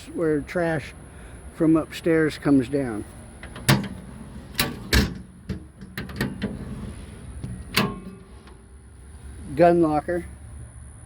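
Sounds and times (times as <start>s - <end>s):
latches clicking: 3.4s - 8.7s.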